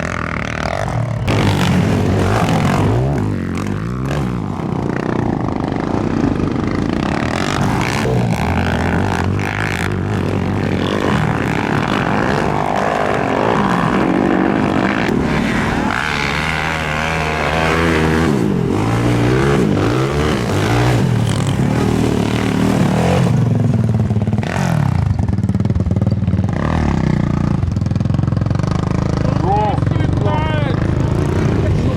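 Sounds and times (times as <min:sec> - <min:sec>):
quad bike engines revving: 0:00.0 - 0:31.9.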